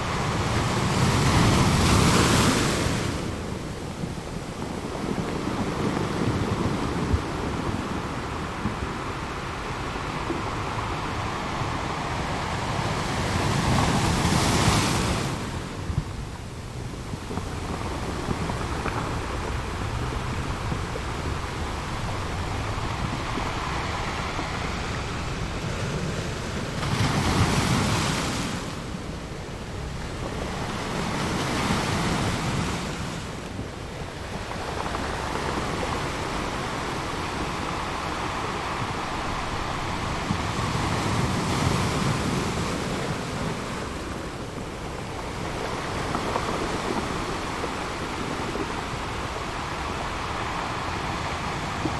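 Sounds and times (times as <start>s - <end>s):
ocean waves breaking: 0.0s - 51.9s.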